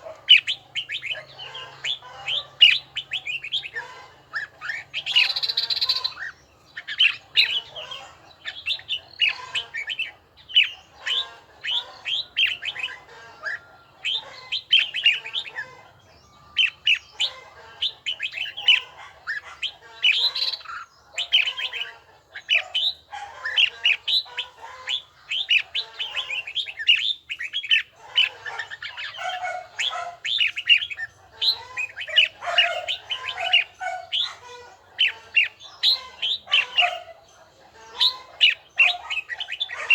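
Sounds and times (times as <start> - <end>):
bird singing short phrases: 20.0 - 34.4.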